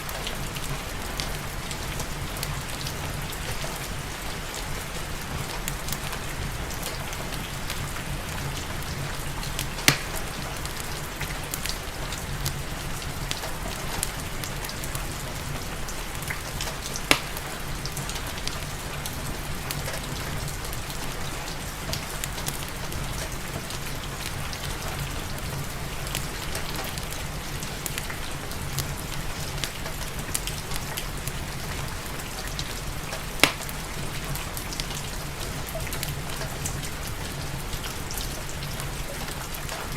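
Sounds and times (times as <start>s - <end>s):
steady rain: 0.0s - 39.9s
wood fire crackling: 0.0s - 39.9s
sharp fire pops: 9.6s - 10.5s, 17.0s - 17.6s, 33.4s - 33.8s.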